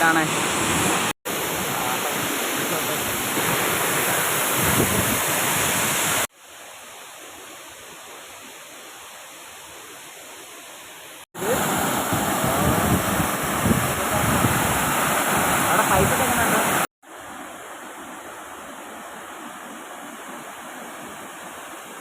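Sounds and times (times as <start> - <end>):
waterfall rushing: 0.0 - 6.3, 10.7 - 22.0.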